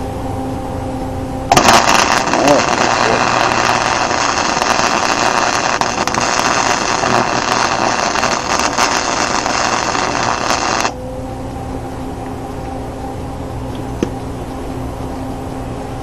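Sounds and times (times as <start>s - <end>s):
low steady hum: 0.0s - 16.0s
welding arc crackling: 1.5s - 11.0s.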